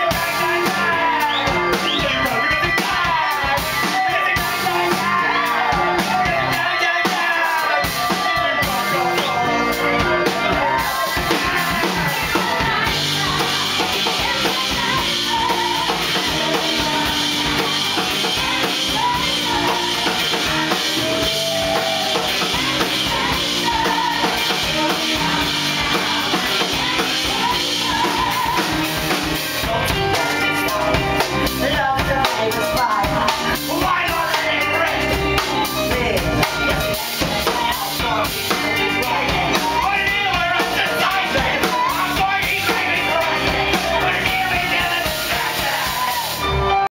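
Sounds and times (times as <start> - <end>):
drum kit: 0.0 - 46.9
live band music: 0.0 - 46.9.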